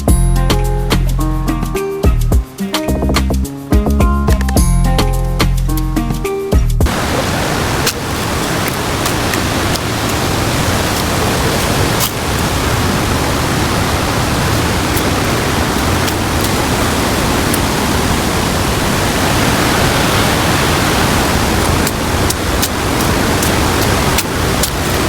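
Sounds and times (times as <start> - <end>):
loud rushing noise: 6.9 - 25.0.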